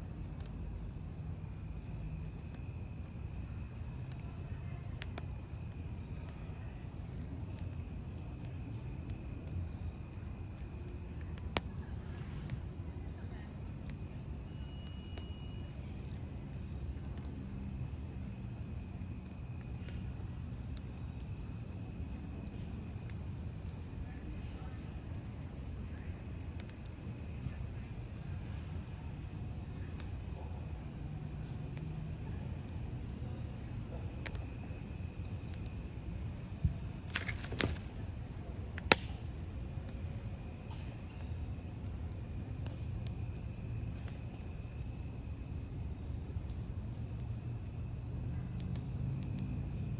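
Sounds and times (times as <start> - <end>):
burning logs popping: 0.0 - 49.9
campfire crackling: 0.0 - 49.9
crickets trilling: 0.0 - 49.9.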